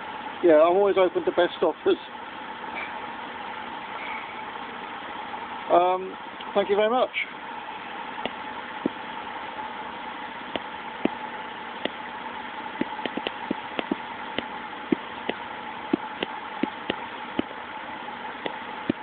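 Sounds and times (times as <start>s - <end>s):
sharp engine ticks: 12.8s - 17.5s.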